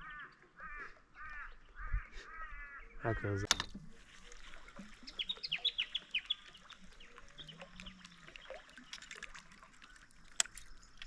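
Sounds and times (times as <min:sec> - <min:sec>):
bird calling: 0:00.0 - 0:03.5, 0:05.0 - 0:08.0.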